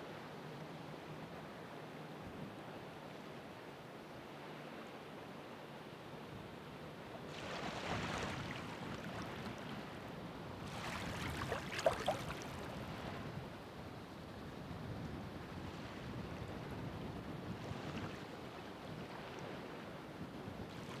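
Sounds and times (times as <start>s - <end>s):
ocean waves breaking on shore: 6.8s - 13.9s.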